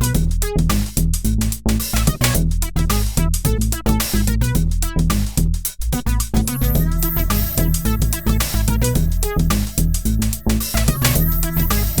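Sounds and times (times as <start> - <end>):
upbeat electronic music: 6.1 - 12.0.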